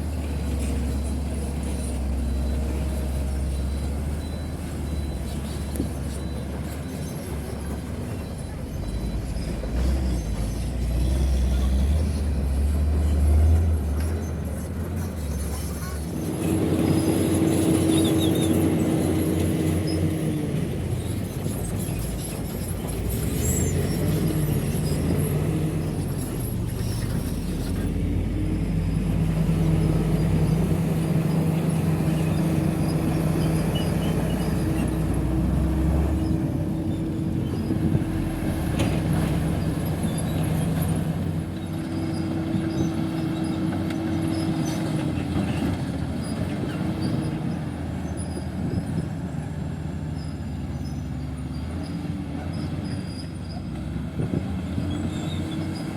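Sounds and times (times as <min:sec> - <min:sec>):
diesel machinery engine drone: 0:00.0 - 0:55.9
high squeal: 0:15.0 - 0:27.9, 0:29.8 - 0:38.5.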